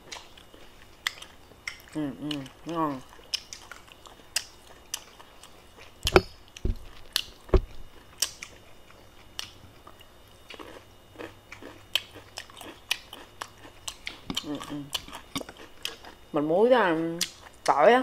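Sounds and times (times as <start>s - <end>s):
person chewing: 0.0s - 16.3s
loud thuds: 6.1s - 6.9s, 7.5s - 7.8s.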